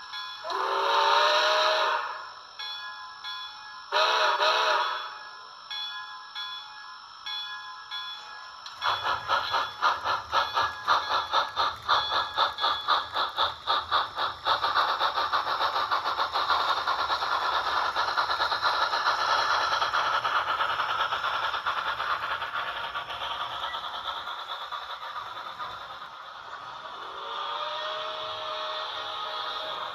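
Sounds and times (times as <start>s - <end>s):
model steam locomotive chuffs: 0.0s - 29.9s
model train motor rattle: 8.6s - 29.9s.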